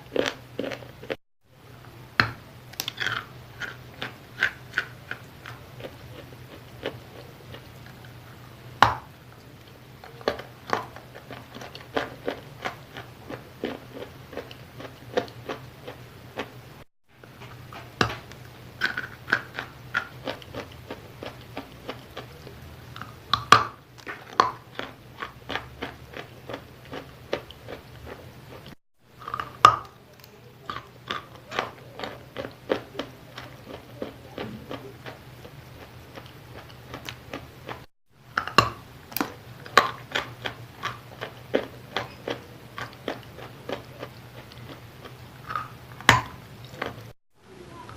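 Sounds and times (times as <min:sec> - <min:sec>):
low steady hum: 0:00.0 - 0:47.9
chewing wet chalk crunches: 0:02.8 - 0:16.5, 0:17.4 - 0:47.2.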